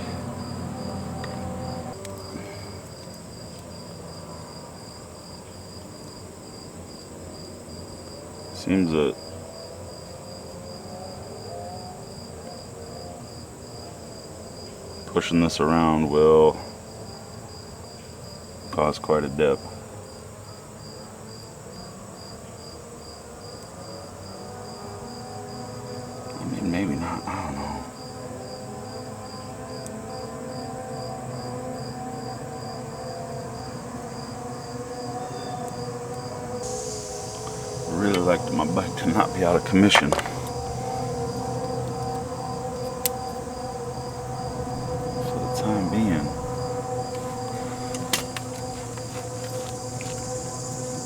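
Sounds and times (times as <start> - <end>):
low steady hum: 0.0 - 2.7, 35.1 - 51.0
crickets chirping: 0.0 - 51.0
high insect hum: 0.0 - 51.0.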